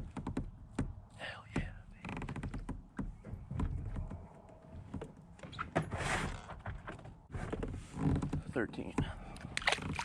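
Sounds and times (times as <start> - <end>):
fishing gear knocks and clicks: 8.2 - 10.0.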